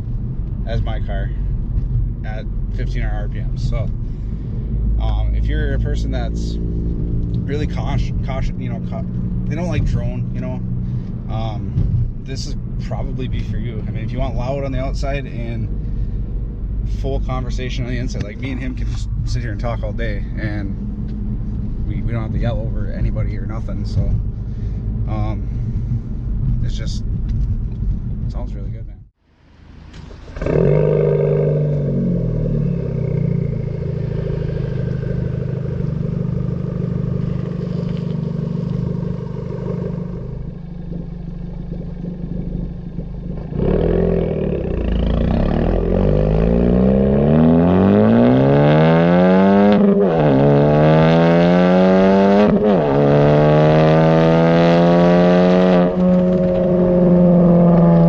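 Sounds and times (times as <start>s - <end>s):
car engine revving: 0.0s - 28.3s, 29.4s - 58.0s
gear changes: 29.6s - 58.0s.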